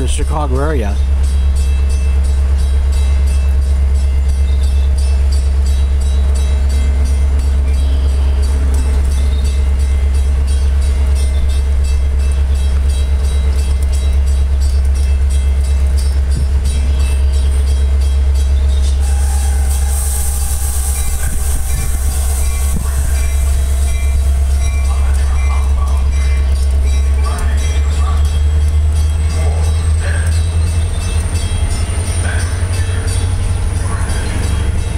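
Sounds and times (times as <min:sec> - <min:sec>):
train engine low rumble: 0:00.0 - 0:34.9
high hiss: 0:19.0 - 0:24.4.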